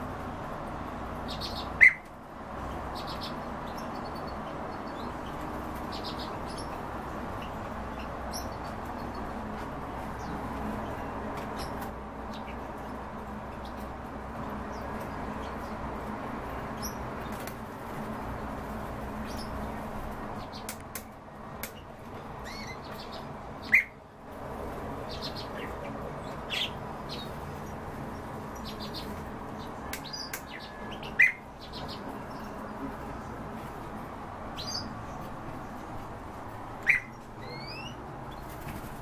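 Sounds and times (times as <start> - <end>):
low background hum: 0.0 - 39.0
birds chirping: 0.1 - 39.0
loud sharp bird calls: 1.2 - 9.4, 20.4 - 24.0, 25.0 - 32.8, 36.8 - 39.0.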